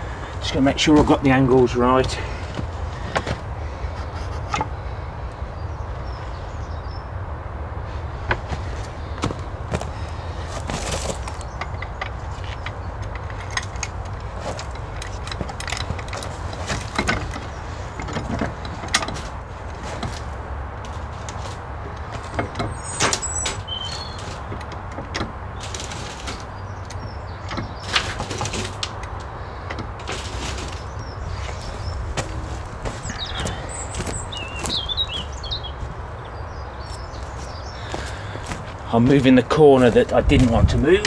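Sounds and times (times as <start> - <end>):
bird chirping: 2.3 - 7.2, 22.0 - 24.7, 25.5 - 28.6, 29.4 - 41.0
knocks and scrapes on metal frame: 8.2 - 36.0.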